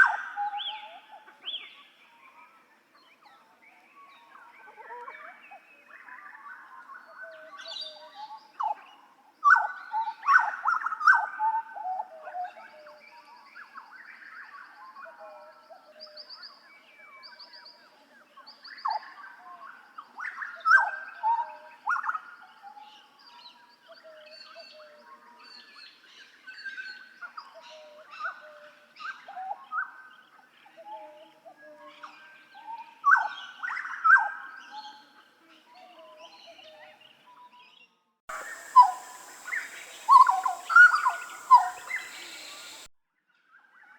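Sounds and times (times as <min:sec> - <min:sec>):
bird singing whistled notes: 0:38.3 - 0:42.9.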